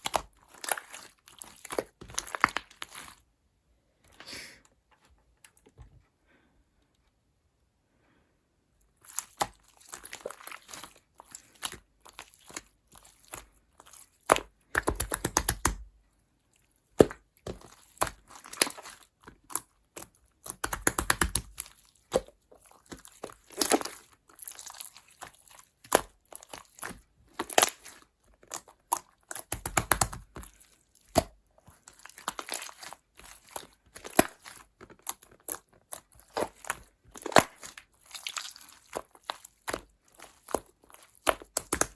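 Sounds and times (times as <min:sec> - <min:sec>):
crackling crinkling handling noise: 0:16.6 - 0:41.9.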